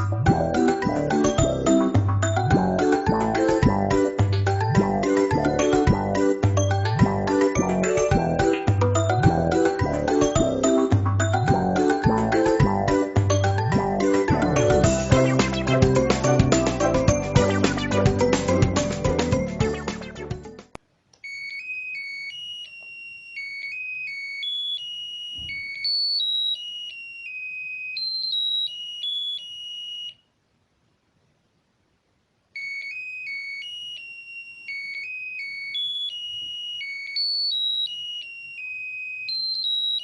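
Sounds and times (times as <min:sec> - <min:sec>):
electronic doorbell melody: 0:00.0 - 0:20.0, 0:34.7 - 0:38.6, 0:39.2 - 0:40.0.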